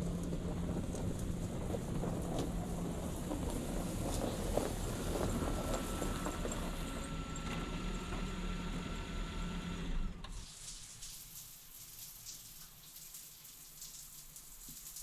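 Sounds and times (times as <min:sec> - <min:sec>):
hiss with faint ticks: 0:10.3 - 0:15.0.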